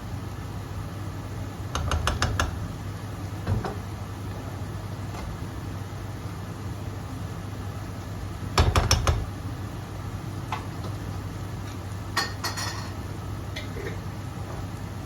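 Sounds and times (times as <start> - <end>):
dishes and cutlery clattering: 12.2 - 13.0.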